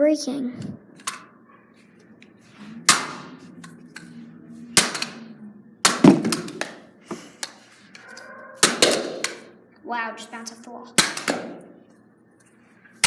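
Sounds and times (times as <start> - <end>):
stick striking plastic hairdryer: 5.9 - 6.8, 8.6 - 9.5, 11.0 - 11.6.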